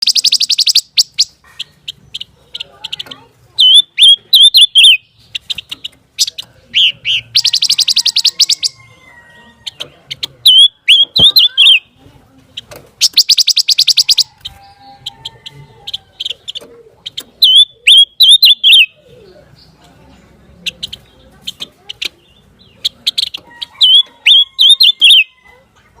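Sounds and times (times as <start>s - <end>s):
bird trills and whistles: 0.0s - 2.3s, 3.6s - 8.8s, 10.5s - 11.9s, 13.0s - 14.6s, 16.2s - 19.0s, 23.1s - 25.3s.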